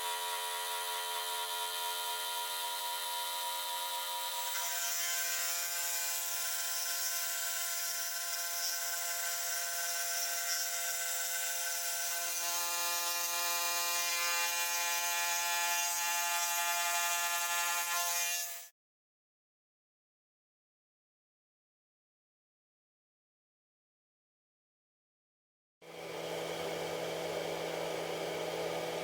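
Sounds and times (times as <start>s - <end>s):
electric power tool whining: 25.9s - 29.0s.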